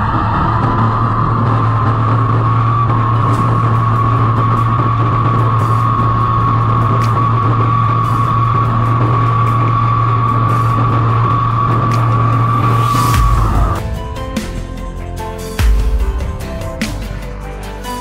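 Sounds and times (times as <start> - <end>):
motor humming with whine: 0.0 - 14.2.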